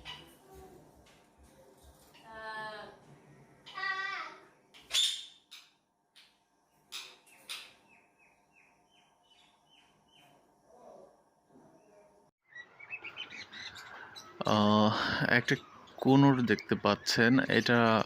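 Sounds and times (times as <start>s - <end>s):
parrots calling shrilly: 3.6s - 5.5s.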